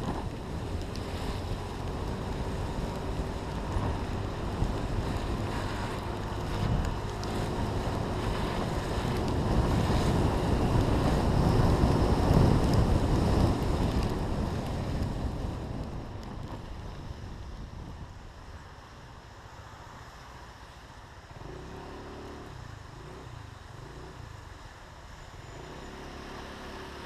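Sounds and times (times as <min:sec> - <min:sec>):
wind buffeting microphone: 0:00.0 - 0:18.5.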